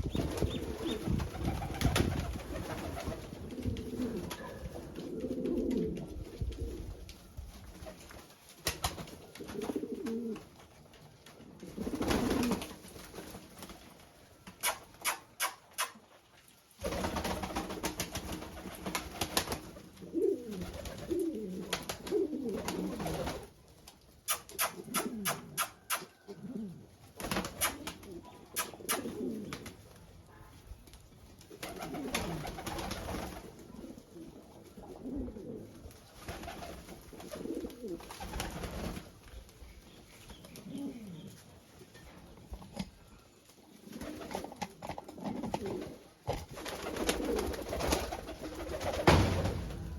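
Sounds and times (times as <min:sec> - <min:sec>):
pigeons cooing: 0:00.0 - 0:06.8, 0:09.4 - 0:10.4, 0:20.0 - 0:23.5, 0:24.3 - 0:29.8, 0:31.6 - 0:35.8, 0:36.4 - 0:39.0, 0:40.2 - 0:49.3.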